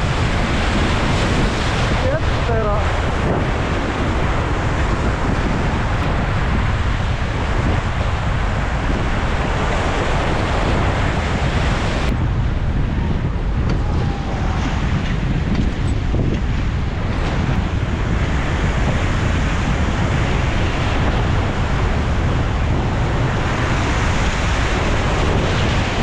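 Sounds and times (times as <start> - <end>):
whitewater rushing: 0.0 - 12.1
wind buffeting microphone: 0.0 - 26.0.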